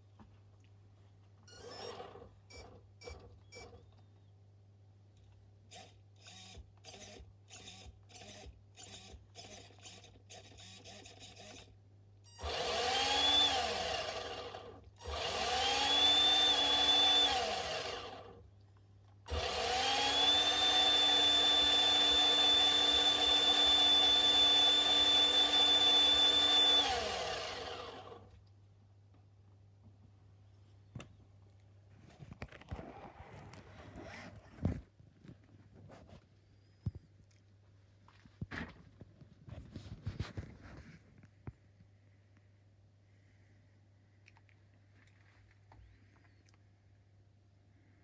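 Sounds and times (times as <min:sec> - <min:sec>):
electric motor short buzzes: 0:12.4 - 0:18.3, 0:19.3 - 0:28.3
electric motor whine: 0:12.4 - 0:18.3, 0:19.3 - 0:28.3.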